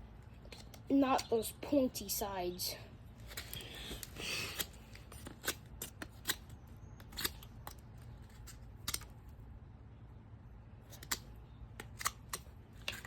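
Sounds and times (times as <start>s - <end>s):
knife scraping wood: 3.2s - 9.1s.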